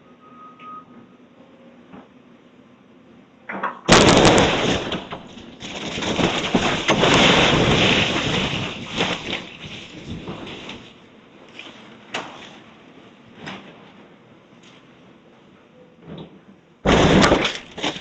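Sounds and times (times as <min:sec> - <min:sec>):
breaking wood and falling debris: 0:03.5 - 0:12.6, 0:16.8 - 0:18.0
loud demolition crash: 0:03.9 - 0:11.0, 0:16.8 - 0:18.0.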